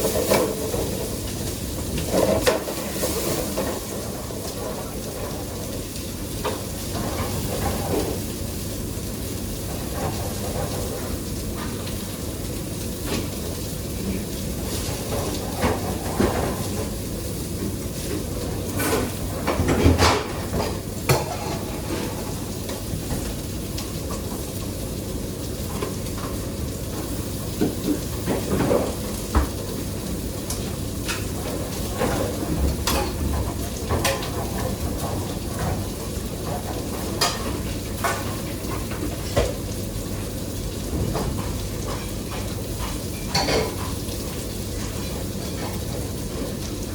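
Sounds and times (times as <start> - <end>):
food sizzling in a pan: 35.5 - 46.9
utensils clinking on cookware: 41.1 - 44.1.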